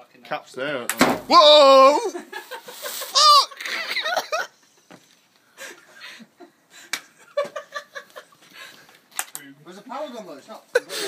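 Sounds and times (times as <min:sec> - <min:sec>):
subdued laughter: 0:02.0 - 0:04.6.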